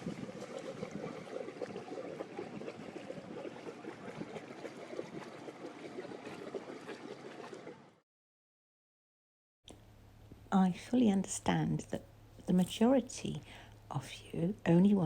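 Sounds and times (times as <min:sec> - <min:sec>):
river water lapping and splashing: 0:00.0 - 0:08.0.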